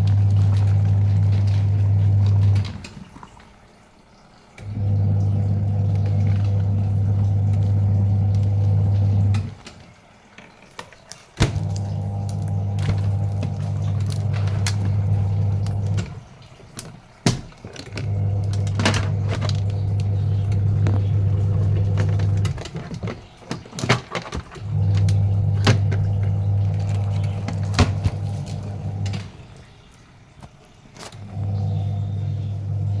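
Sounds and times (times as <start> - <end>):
washing machine motor humming: 0.0 - 33.0
clicks and knocks: 12.4 - 29.4.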